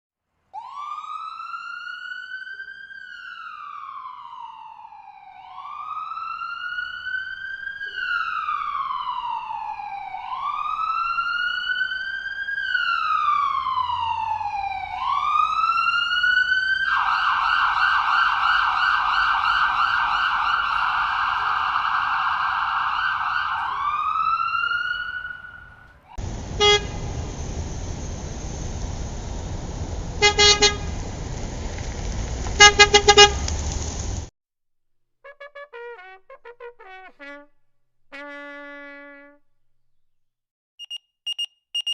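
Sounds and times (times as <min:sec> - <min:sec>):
emergency siren wailing: 0:00.6 - 0:34.3
short loud honk: 0:26.6 - 0:27.1, 0:30.2 - 0:30.9, 0:32.6 - 0:33.5.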